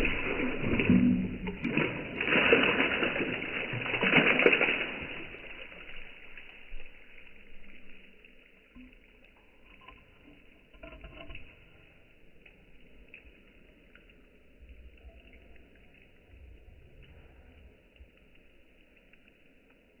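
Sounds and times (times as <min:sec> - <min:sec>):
tile pieces splashing into water: 0:00.0 - 0:06.1.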